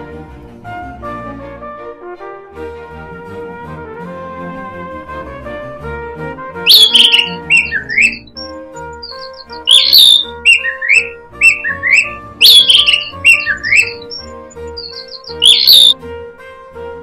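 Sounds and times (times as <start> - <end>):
instrumental music with steady beat: 0.0 - 17.0
songbird whistling: 6.7 - 16.0.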